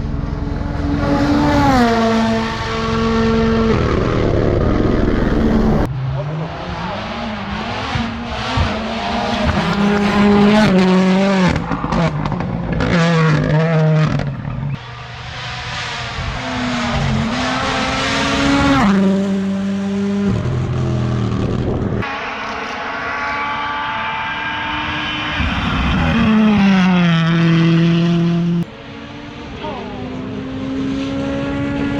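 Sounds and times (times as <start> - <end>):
rally car engines at full throttle: 0.0 - 31.9.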